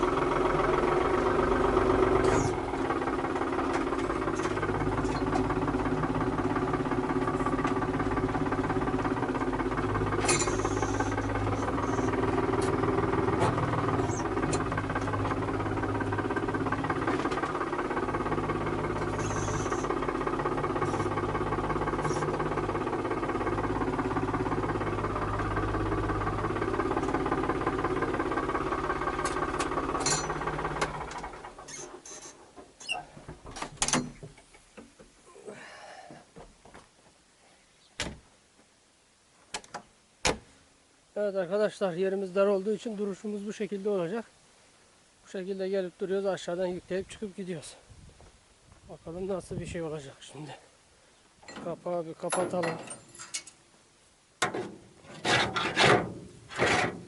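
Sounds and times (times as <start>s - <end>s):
tractor engine running: 0.0s - 35.0s
metallic clanks and knocks: 10.2s - 10.7s, 29.2s - 31.2s, 51.4s - 53.6s, 54.4s - 57.0s.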